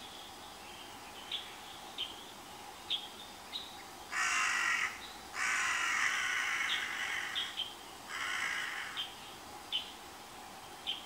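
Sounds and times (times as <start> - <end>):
harsh rasping bird calls: 2.9 - 10.0.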